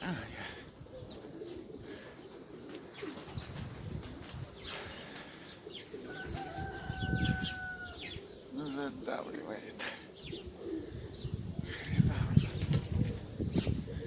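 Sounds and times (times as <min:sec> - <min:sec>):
pigeons cooing: 0:00.0 - 0:14.0
wing flaps: 0:12.5 - 0:13.4.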